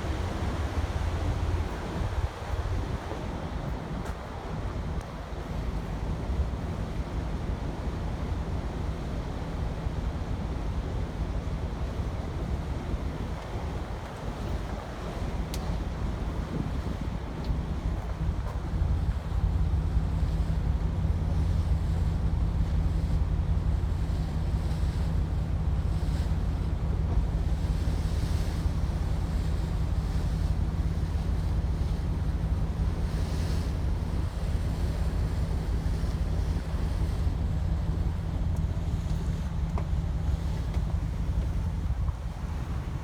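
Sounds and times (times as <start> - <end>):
wind buffeting microphone: 10.8 - 43.0.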